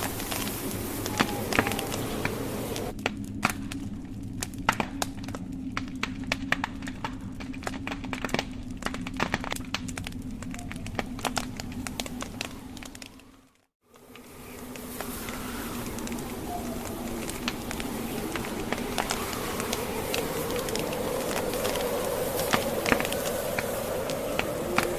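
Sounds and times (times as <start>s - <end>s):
high hiss: 0.0s - 2.9s, 13.9s - 24.9s
steady low hum: 0.0s - 12.9s, 13.9s - 24.9s
logs crackling and popping: 0.0s - 24.9s.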